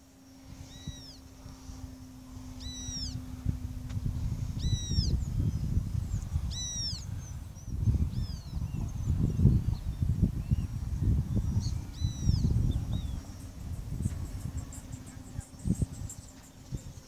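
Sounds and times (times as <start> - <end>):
bird call rising and falling: 0.0 - 3.8, 4.5 - 10.7
faint steady hum: 0.0 - 17.0
wind rumble on microphone: 0.0 - 17.0.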